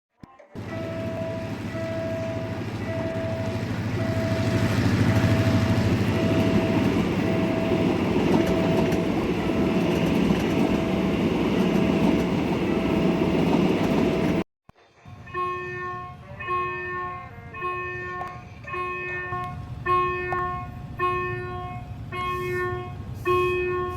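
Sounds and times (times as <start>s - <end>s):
crossing signal beeps: 0.6s - 14.4s
diesel engine hum: 0.6s - 14.4s
train rumbling past: 0.6s - 14.4s, 15.0s - 23.9s.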